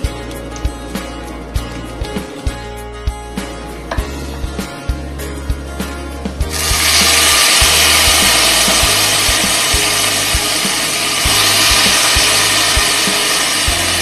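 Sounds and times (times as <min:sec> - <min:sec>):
pork sizzling in hot oil: 0:06.4 - 0:14.0.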